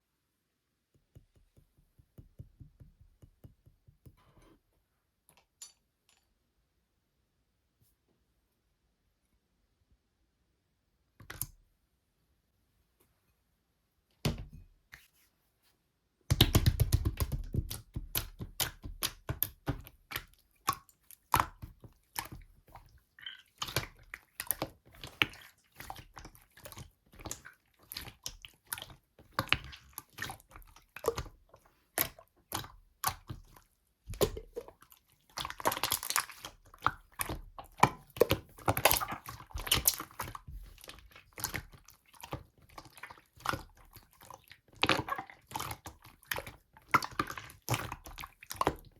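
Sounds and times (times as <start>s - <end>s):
slime squelching by hand: 16.4s - 48.9s.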